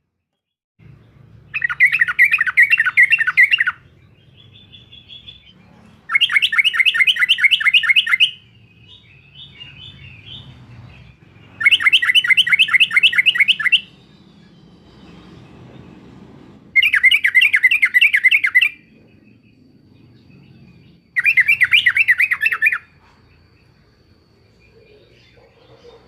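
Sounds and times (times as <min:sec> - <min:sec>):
bulbul singing rapid notes: 0:01.5 - 0:15.0, 0:16.7 - 0:19.0
soft bird chattering: 0:01.5 - 0:15.3, 0:20.6 - 0:23.5.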